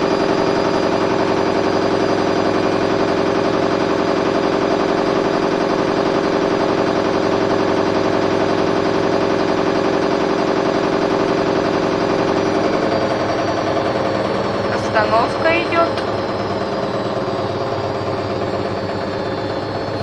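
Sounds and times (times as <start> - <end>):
fast pulsing rattle: 0.0 - 20.0
washing machine spinning: 0.0 - 20.0.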